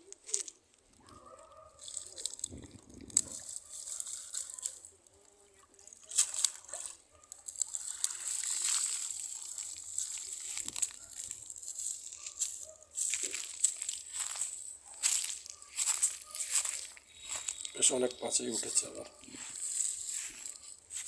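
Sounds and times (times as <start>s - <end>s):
net clicks and rattles: 0.0s - 5.1s
water sloshing and splashing: 5.6s - 11.9s.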